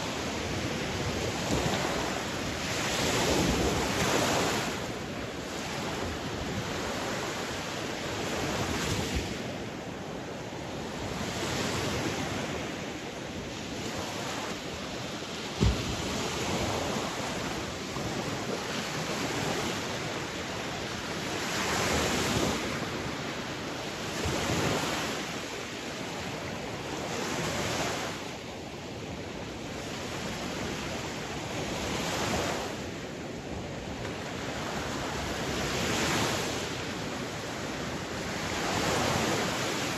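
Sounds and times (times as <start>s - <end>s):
sea waves washing on shore: 0.0s - 39.9s
short thump: 15.6s - 15.9s.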